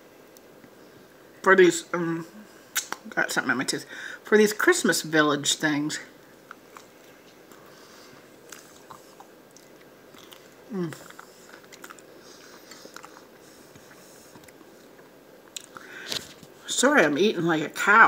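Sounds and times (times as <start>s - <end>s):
wet mouth and fork clicks: 2.8s - 3.0s
close-up chewing: 6.4s - 16.6s.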